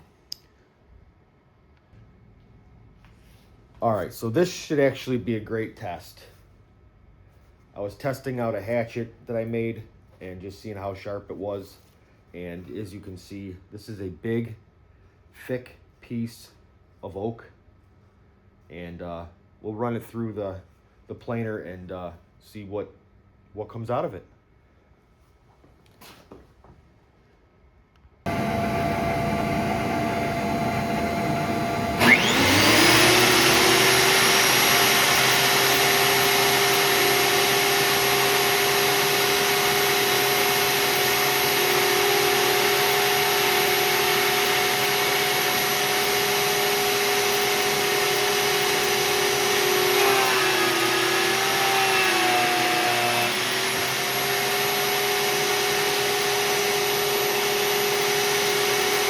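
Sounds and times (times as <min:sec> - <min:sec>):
steady machine hum: 0:28.2 - 0:59.0
planer motor whining: 0:28.3 - 0:59.0.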